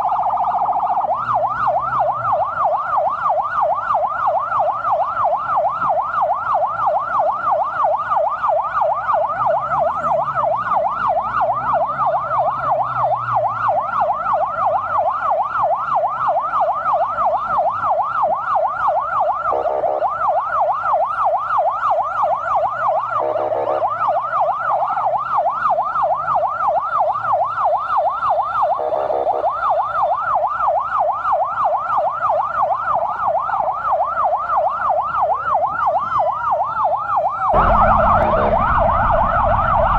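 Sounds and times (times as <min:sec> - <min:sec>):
siren yelping: 0:00.0 - 0:39.9
low engine hum: 0:37.6 - 0:39.9.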